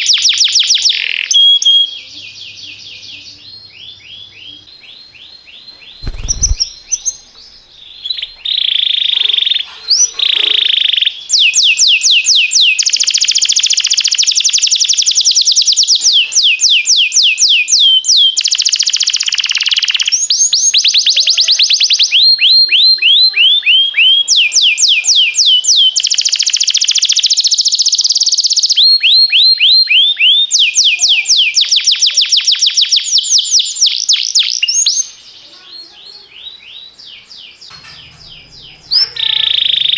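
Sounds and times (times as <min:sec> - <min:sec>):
canary singing rolls: 0:05.7 - 0:11.1, 0:37.7 - 0:39.9.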